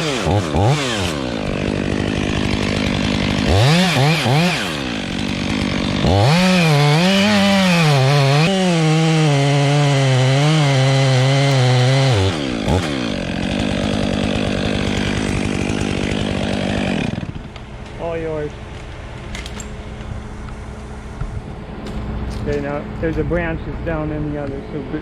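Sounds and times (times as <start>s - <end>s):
chainsaw cutting through wood: 0.0s - 19.2s.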